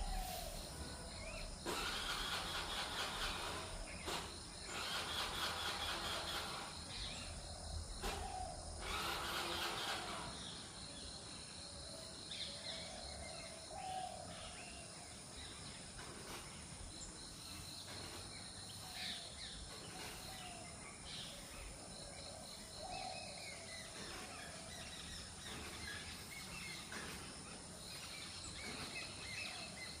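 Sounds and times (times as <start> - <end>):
dove cooing: 0.0 - 0.8
outdoor background noise: 0.0 - 30.0.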